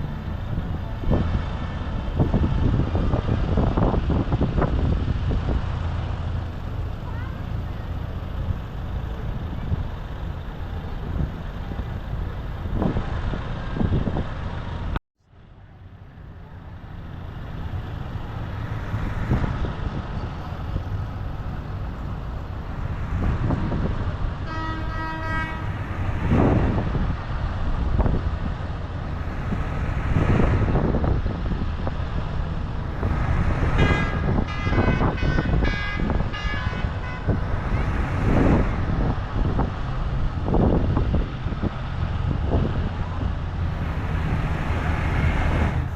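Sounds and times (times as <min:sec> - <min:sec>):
tractor engines running: 0:00.0 - 0:45.9
horn toots: 0:24.4 - 0:26.4, 0:33.7 - 0:38.0.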